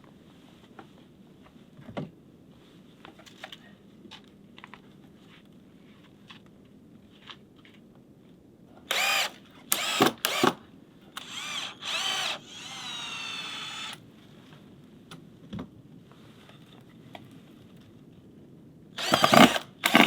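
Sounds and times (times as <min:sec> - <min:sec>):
power drill whirring: 0:08.9 - 0:10.6, 0:11.2 - 0:14.0, 0:19.0 - 0:20.0.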